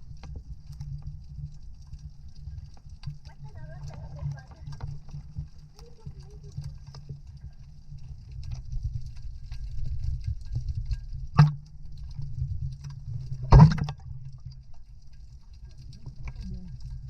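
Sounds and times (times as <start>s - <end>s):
low rumbling noise: 0.0s - 17.0s
loud knocks or splashes: 13.5s - 14.0s.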